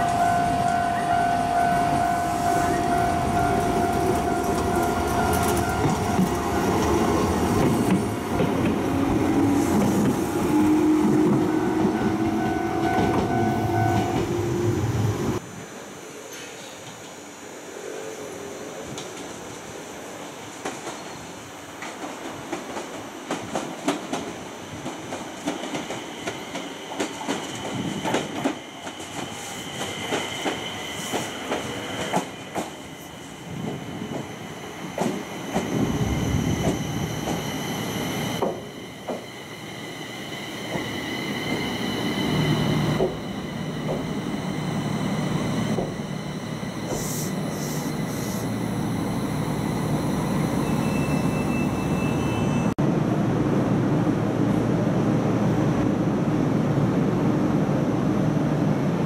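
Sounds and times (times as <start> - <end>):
low train rumble: 0.0 - 16.3, 17.8 - 59.0
high-pitched squeal: 29.3 - 52.8.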